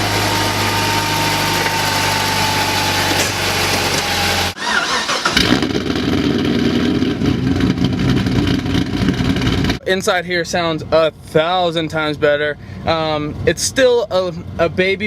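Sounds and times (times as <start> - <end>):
engine starting and idling unevenly: 0.0 - 9.8
engine running: 0.0 - 9.9.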